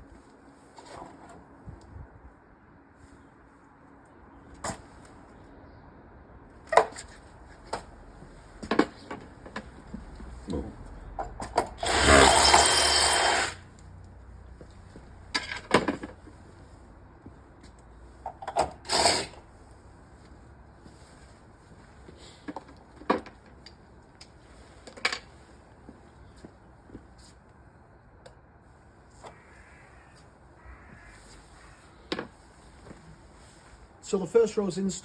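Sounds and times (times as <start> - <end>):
power drill running: 11.8 - 13.7, 18.9 - 19.4.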